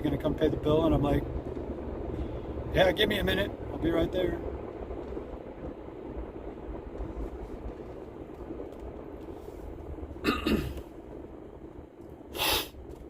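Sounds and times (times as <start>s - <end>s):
car cabin road and engine rumble: 0.0s - 13.0s
man clearing his throat: 10.2s - 10.8s
man coughing: 10.2s - 10.8s.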